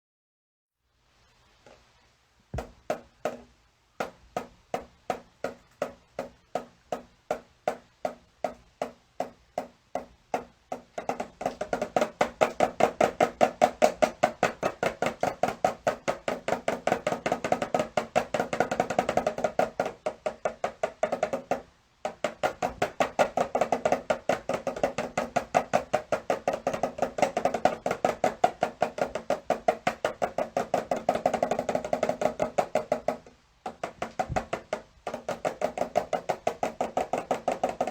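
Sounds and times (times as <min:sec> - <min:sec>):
drum beating: 0:02.5 - 0:37.9.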